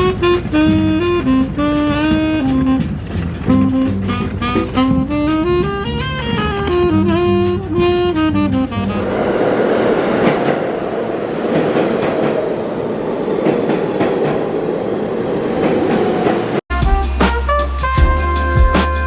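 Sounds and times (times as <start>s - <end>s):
music with melody: 16.7s - 19.0s.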